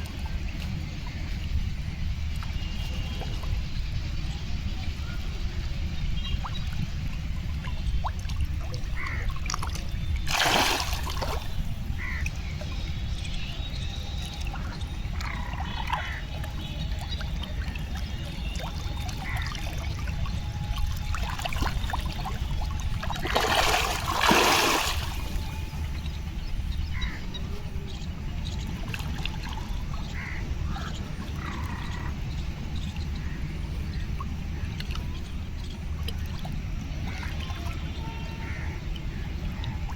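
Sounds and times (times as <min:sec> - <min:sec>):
steady low rumble: 0:00.0 - 0:39.9
pond water splashing: 0:08.0 - 0:12.6, 0:14.2 - 0:26.0.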